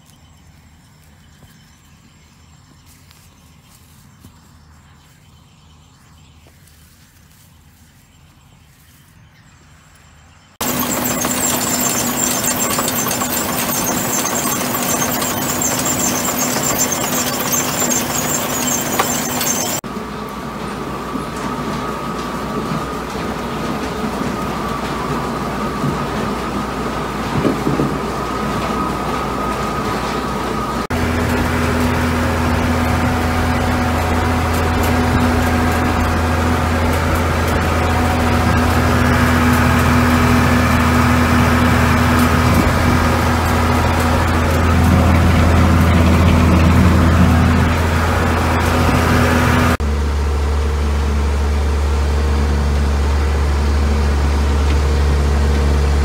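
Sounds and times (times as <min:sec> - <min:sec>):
loud engine running: 0:10.6 - 0:56.0
quieter machine running: 0:10.6 - 0:56.0.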